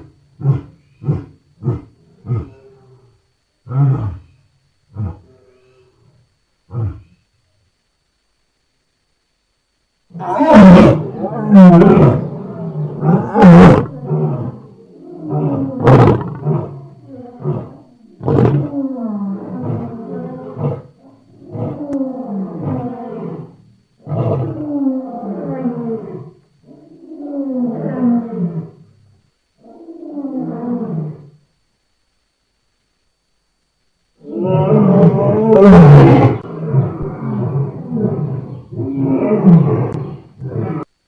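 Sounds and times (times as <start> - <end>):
lion roaring: 0.0 - 4.3, 4.9 - 5.7, 10.1 - 28.8, 34.2 - 40.9.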